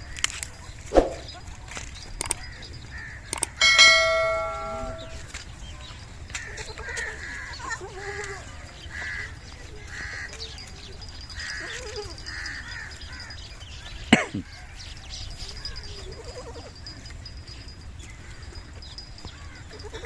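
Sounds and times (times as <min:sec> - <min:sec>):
metallic bell-like clang: 0:03.4 - 0:05.3.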